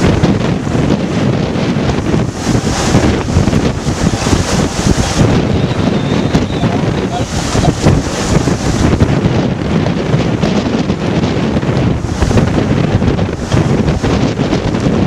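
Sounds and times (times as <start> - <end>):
water rushing along hull: 0.0 - 15.0
waves: 0.0 - 15.0
wind buffeting microphone: 0.0 - 15.0.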